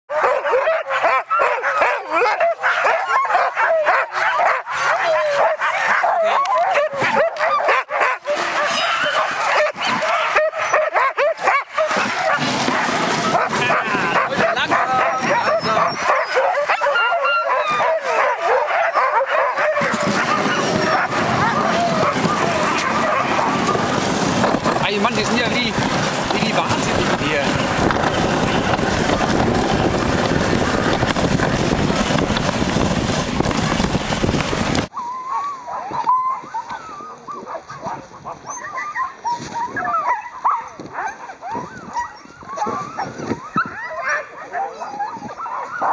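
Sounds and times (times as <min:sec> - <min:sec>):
sled dogs yelping and barking: 0:00.1 - 0:45.9
wind buffeting microphone: 0:08.3 - 0:35.0, 0:35.9 - 0:45.9
steady rushing noise: 0:11.9 - 0:15.4, 0:19.8 - 0:34.9.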